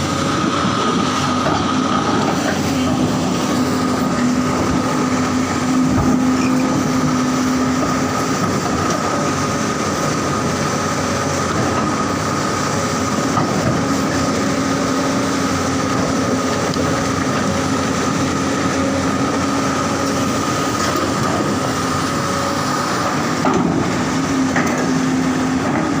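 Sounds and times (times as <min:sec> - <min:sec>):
excavator engine droning: 0:00.0 - 0:26.0
hydraulic high whine: 0:00.0 - 0:26.0.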